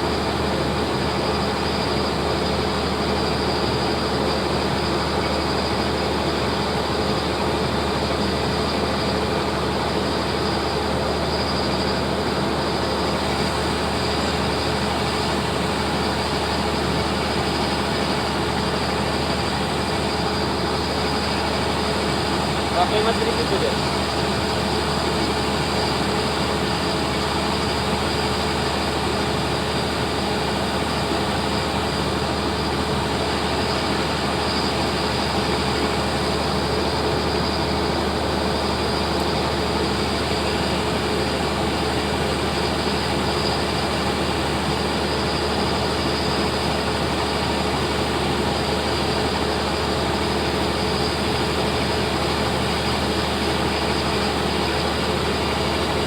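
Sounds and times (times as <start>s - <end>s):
ferry engines droning: 0.0s - 56.0s.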